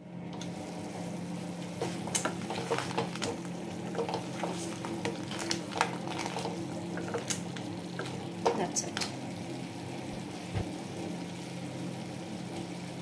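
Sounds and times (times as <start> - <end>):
food sizzling in a pan: 0.5 - 13.0
spatula knocking and scraping pan: 1.8 - 7.3.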